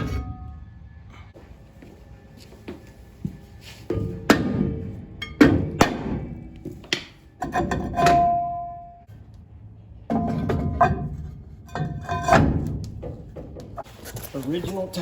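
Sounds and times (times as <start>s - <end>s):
metal clanks and knocks: 3.9s - 9.0s, 10.0s - 13.9s.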